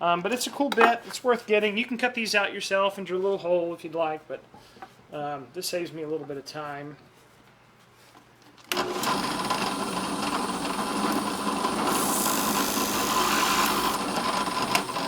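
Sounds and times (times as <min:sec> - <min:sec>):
electric drill whining: 0:08.8 - 0:15.0.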